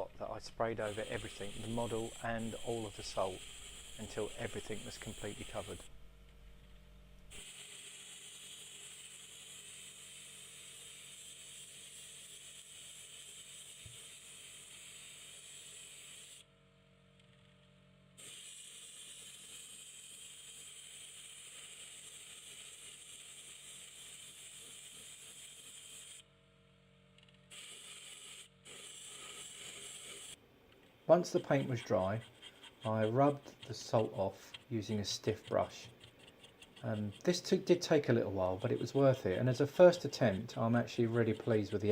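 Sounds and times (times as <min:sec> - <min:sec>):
airbrush spraying hiss: 0:00.4 - 0:05.9.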